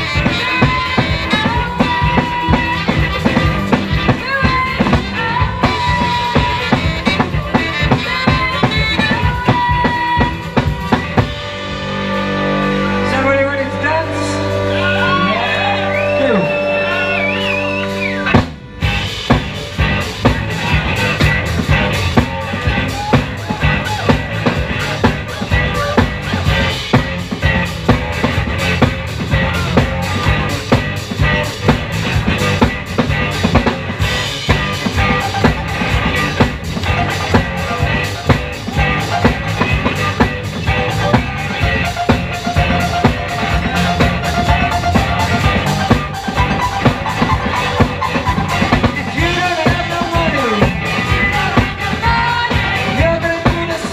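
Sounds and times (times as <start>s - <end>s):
drum kit beat: 0.0s - 13.0s, 14.0s - 53.9s
guitar and bass playing: 0.0s - 53.9s
electric guitar chord ringing: 34.3s - 49.8s.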